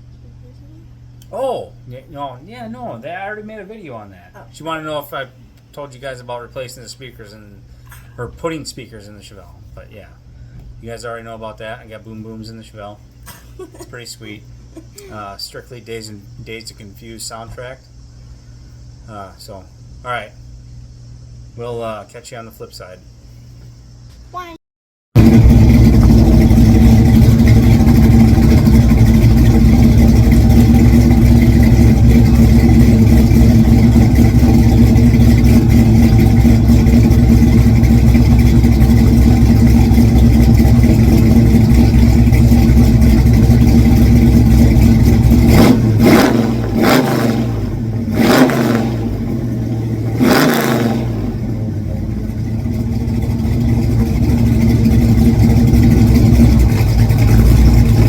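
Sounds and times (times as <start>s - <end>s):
car engine revving: 25.2s - 58.0s.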